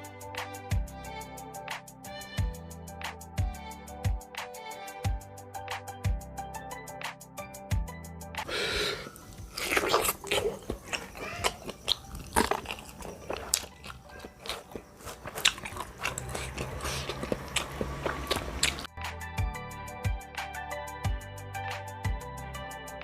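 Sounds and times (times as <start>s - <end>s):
background music: 0.0s - 23.0s
wet chewing and smacking: 9.0s - 18.9s.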